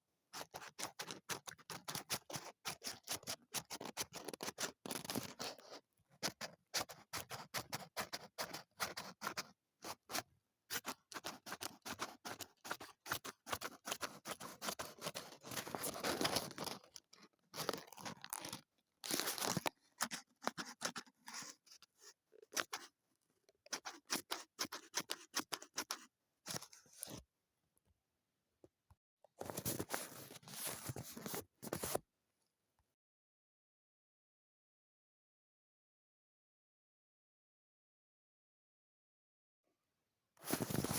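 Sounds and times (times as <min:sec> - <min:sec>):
scissors cutting paper: 0:00.4 - 0:16.9, 0:17.5 - 0:21.6, 0:22.5 - 0:22.9, 0:23.7 - 0:27.2
paper handling: 0:10.8 - 0:21.6, 0:29.4 - 0:32.0, 0:40.4 - 0:40.9.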